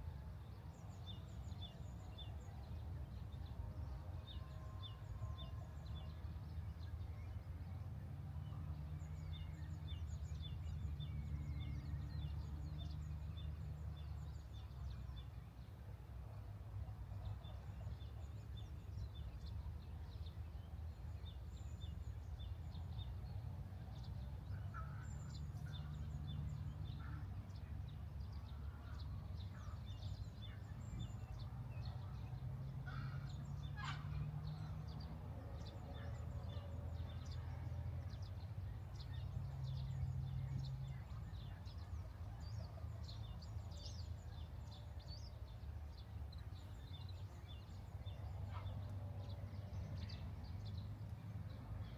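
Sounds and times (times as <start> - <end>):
wild birds chirping: 28.4 - 51.9.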